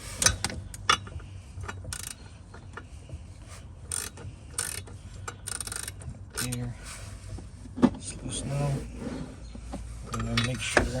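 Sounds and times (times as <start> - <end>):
ratchet wrench clicking: 1.7 - 2.2, 3.9 - 6.6.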